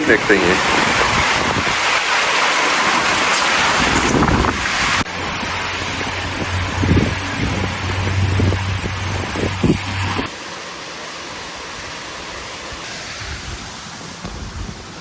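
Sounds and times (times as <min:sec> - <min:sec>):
light rain: 0:00.0 - 0:09.4, 0:10.2 - 0:15.0
wind hissing: 0:00.0 - 0:15.0
low hum: 0:05.0 - 0:14.9.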